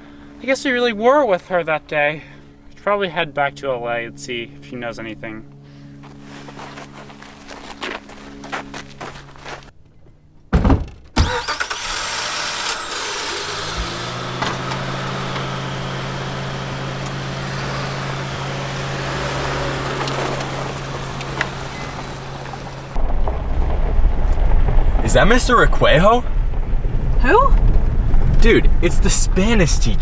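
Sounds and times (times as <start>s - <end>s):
car doors slamming: 10.5s - 11.5s, 13.6s - 23.1s
car engine starting and idling: 11.0s - 30.0s.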